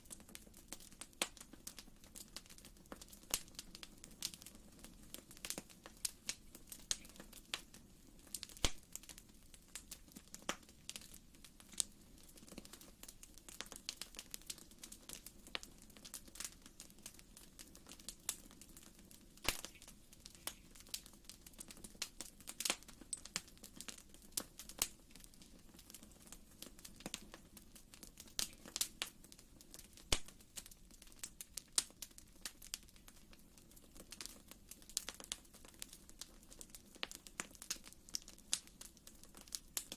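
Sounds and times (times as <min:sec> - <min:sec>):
fireplace fire crackling: 0:00.0 - 0:39.9.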